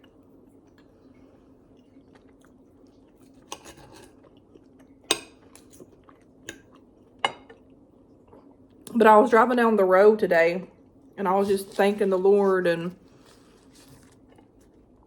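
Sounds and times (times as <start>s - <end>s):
quiet chewing: 0.0s - 8.9s, 10.8s - 15.0s.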